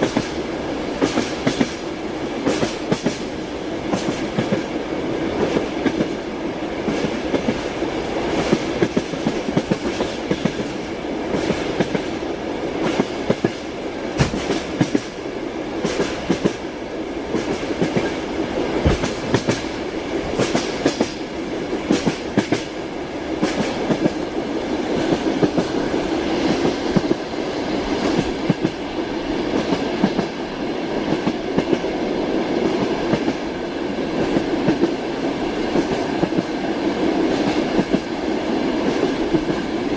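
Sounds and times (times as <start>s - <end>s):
train wheels clicking over rail joints: 0.0s - 1.8s, 2.4s - 4.8s, 5.4s - 16.7s, 17.3s - 22.8s, 23.4s - 30.4s, 32.5s - 39.8s
train rumble: 0.0s - 39.9s
sharp knocks: 14.2s - 14.6s.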